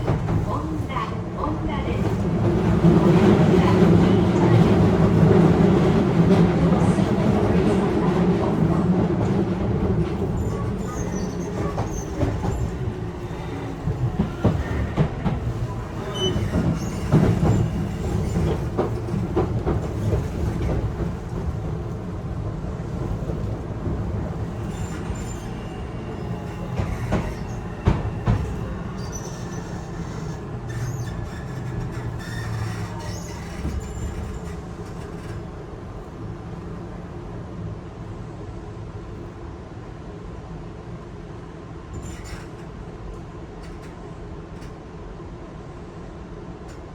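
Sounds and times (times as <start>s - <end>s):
rail joint clacks: 0.0s - 35.6s, 41.9s - 44.9s
train wheels rumbling on rail: 0.0s - 46.9s
faint high wheel squeal: 10.4s - 14.9s, 15.6s - 18.5s, 24.4s - 34.6s.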